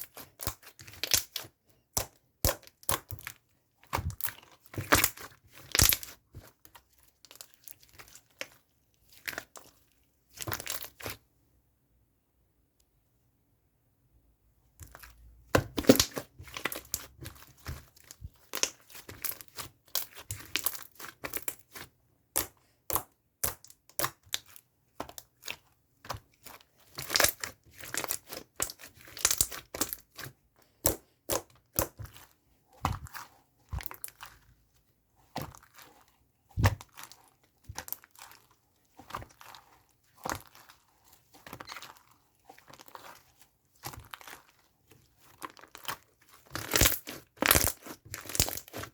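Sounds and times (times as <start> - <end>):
slime crackling and popping: 0.0 - 6.2, 15.6 - 32.2, 35.3 - 48.9.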